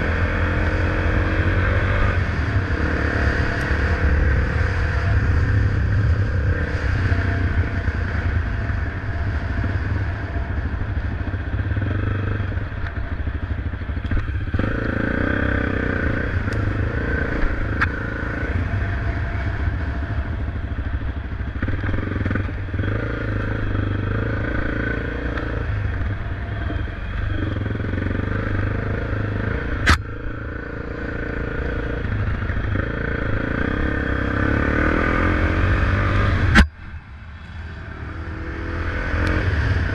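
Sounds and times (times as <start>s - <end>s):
motorcycle engine running: 0.0s - 39.9s
sharp click: 29.8s - 30.1s.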